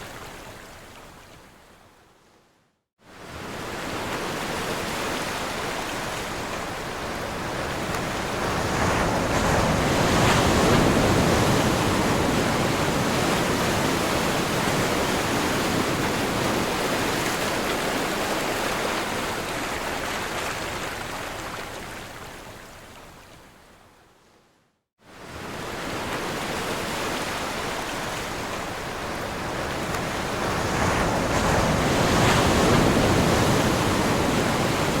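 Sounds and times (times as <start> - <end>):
ocean waves rushing: 25.3 - 35.0.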